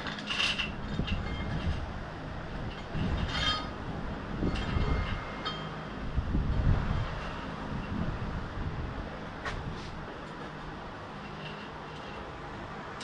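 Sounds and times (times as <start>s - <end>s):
metal chain clinking: 0.0s - 1.8s, 2.8s - 3.7s
fan humming: 0.0s - 13.0s.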